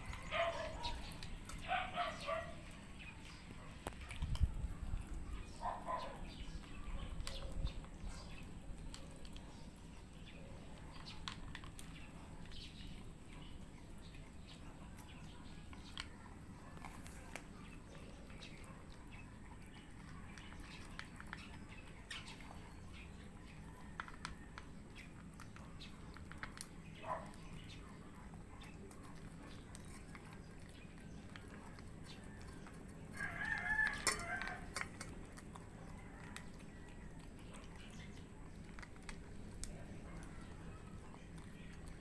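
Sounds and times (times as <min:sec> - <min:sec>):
cats eating crunchy food: 0:00.0 - 0:42.0
rooster crowing: 0:33.1 - 0:34.7.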